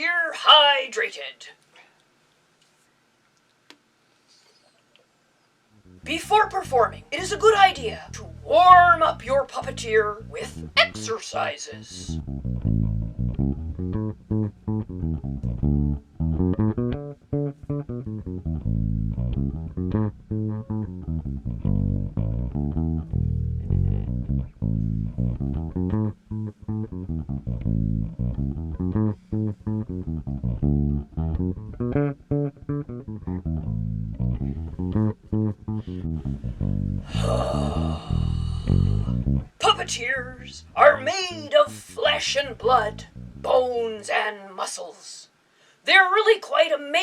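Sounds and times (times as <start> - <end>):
instrumental music with bass guitar: 5.8 - 11.0, 12.0 - 43.5.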